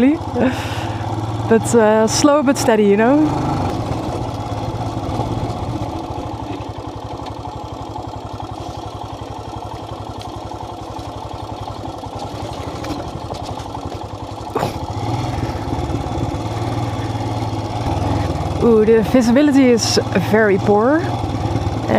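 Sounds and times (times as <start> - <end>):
motorcycle engine at low revs: 0.0 - 21.9.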